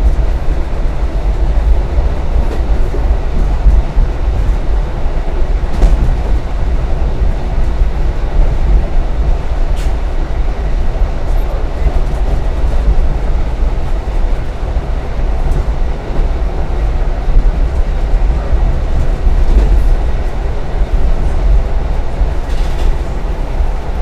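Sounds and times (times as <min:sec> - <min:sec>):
train rumbling along track: 0:00.0 - 0:24.0.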